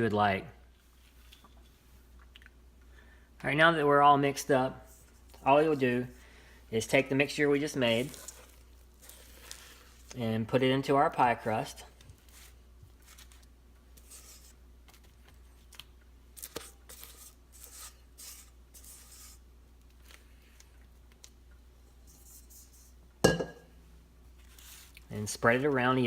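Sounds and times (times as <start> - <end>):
utensil scraping mixing bowl: 7.3 - 10.2.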